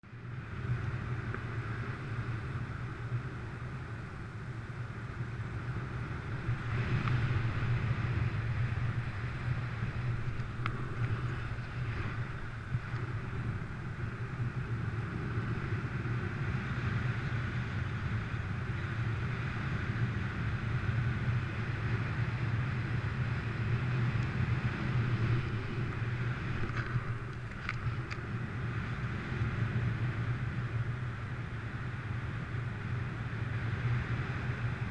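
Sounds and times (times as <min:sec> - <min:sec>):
wind rushing over microphone: 0:00.0 - 0:34.9
faint ticks: 0:01.2 - 0:01.6, 0:06.4 - 0:07.7, 0:08.8 - 0:15.2, 0:24.1 - 0:24.4, 0:25.2 - 0:29.0.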